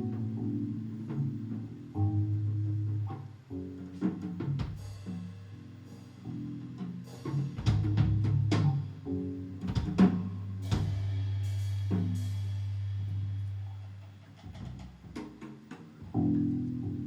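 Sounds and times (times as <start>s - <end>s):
live band music: 0.0s - 13.6s
drum kit hits and fills: 3.8s - 13.5s.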